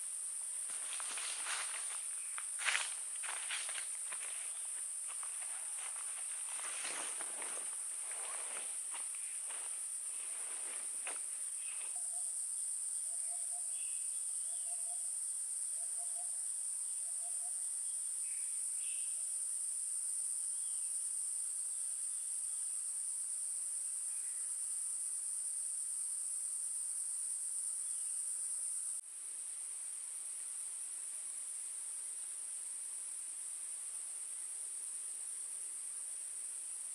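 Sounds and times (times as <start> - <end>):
insects shrilling: 0.0 - 12.2.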